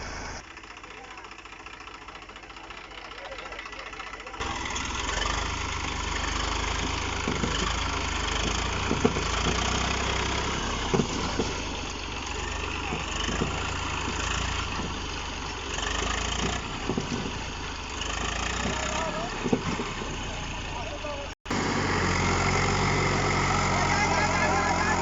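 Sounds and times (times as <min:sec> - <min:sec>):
tractor engine rumbling: 0:00.0 - 0:25.0.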